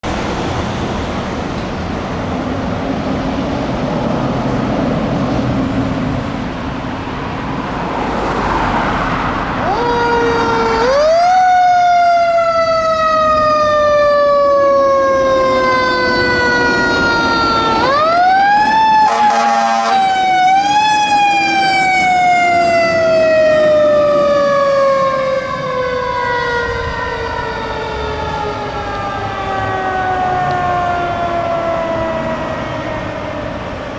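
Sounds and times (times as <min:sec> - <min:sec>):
engine and road noise: 0:00.0 - 0:33.9
mechanical siren wailing: 0:09.5 - 0:33.9
fire engine horn blast: 0:12.4 - 0:25.2.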